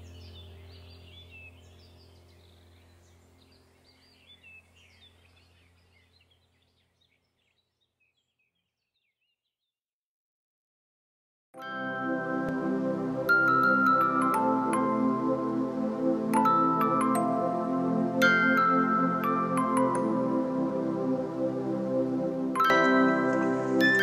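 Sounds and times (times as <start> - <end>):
steady low hum: 0.0 - 7.3
small birds chirping: 0.0 - 9.8.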